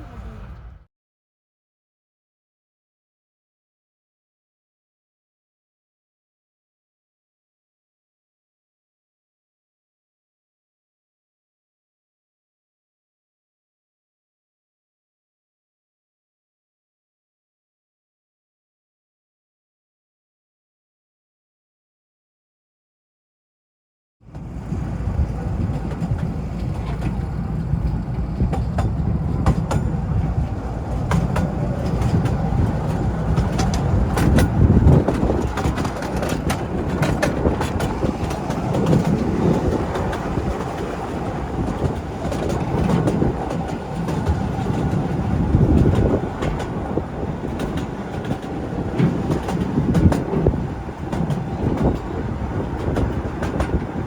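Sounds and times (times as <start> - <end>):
small train rumbling: 0.0 - 0.9, 24.2 - 54.0
wheels clattering on rails: 24.3 - 54.0.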